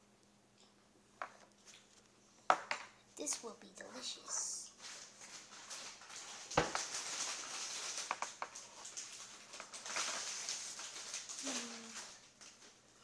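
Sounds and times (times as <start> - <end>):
rustling and scraping: 3.8 - 12.8.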